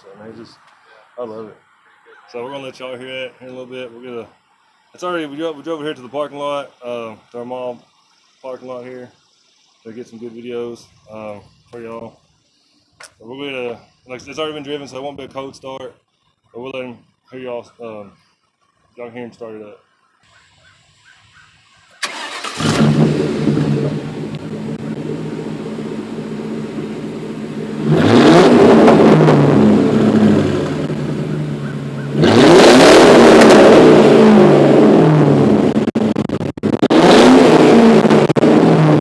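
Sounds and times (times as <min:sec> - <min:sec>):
car engine starting: 0:21.9 - 0:39.0
car engine idling and revving: 0:22.0 - 0:39.0.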